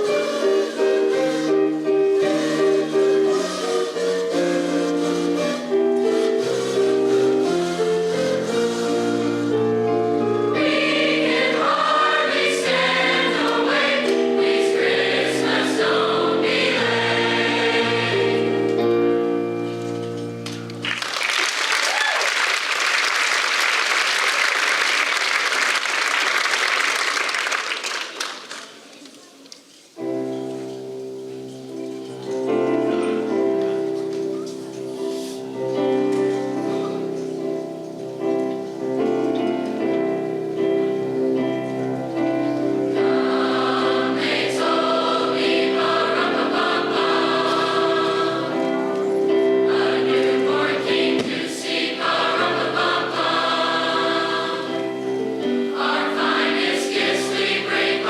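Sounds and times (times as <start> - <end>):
choir singing held chords: 0.0 - 19.8, 40.0 - 58.0
audience applause: 20.8 - 28.9.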